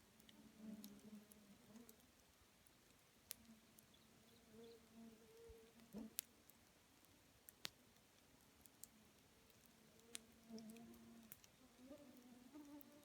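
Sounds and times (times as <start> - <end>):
campfire crackling and popping: 5.8 - 11.6.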